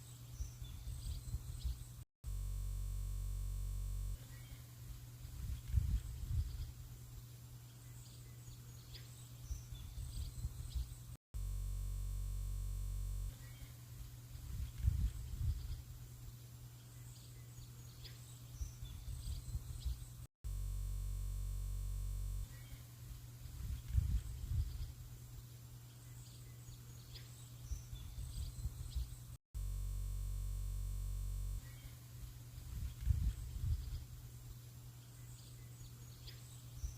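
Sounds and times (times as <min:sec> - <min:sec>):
steady low hum: 0:00.0 - 0:36.9
faint bird chirps: 0:04.1 - 0:11.2, 0:13.3 - 0:20.3, 0:22.4 - 0:29.4, 0:31.6 - 0:36.9.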